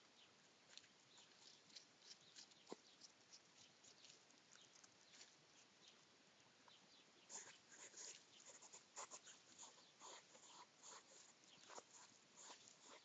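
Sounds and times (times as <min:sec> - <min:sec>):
hedgehogs clicking and crackling: 0:00.6 - 0:06.1.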